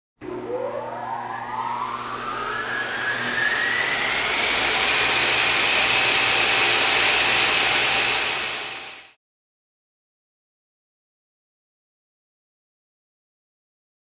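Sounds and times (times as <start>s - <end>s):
low hum: 0.2s - 6.4s
machine motor whining: 0.2s - 9.1s
rushing noise: 0.9s - 9.0s.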